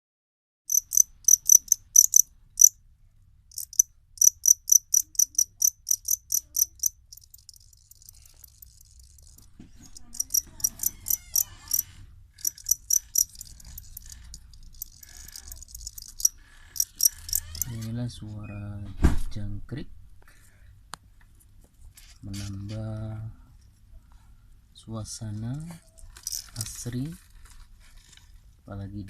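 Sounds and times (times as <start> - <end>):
crickets chirping: 0.7 - 2.8, 3.5 - 11.8, 12.4 - 17.7, 26.1 - 26.8.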